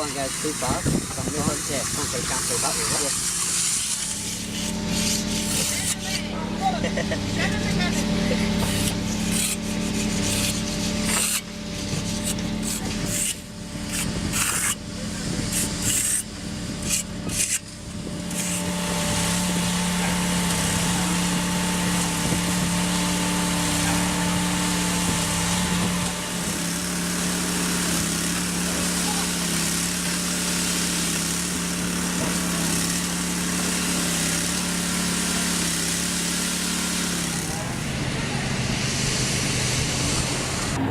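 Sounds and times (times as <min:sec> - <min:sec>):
rough irregular scraping: 0:00.0 - 0:14.8, 0:15.4 - 0:29.6
machine engine running: 0:00.0 - 0:40.9.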